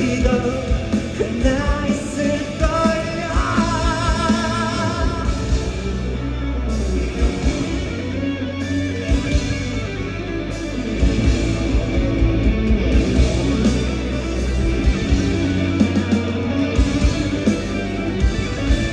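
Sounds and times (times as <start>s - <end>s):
steady drum beat: 0.0s - 6.1s, 6.9s - 8.1s, 10.9s - 18.9s
bass: 0.0s - 18.9s
electric guitar: 0.0s - 18.9s.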